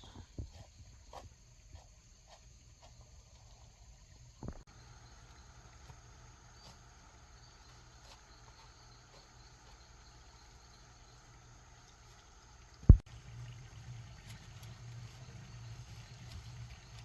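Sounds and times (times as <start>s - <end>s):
faint insect chirping: 0.0s - 13.0s
low steady hum: 0.0s - 17.0s.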